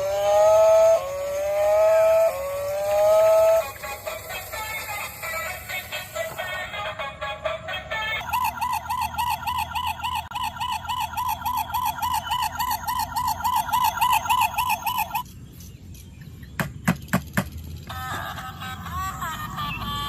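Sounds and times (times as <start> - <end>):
electronic toy siren warbling: 0.0 - 6.4, 8.1 - 15.3, 17.9 - 20.0.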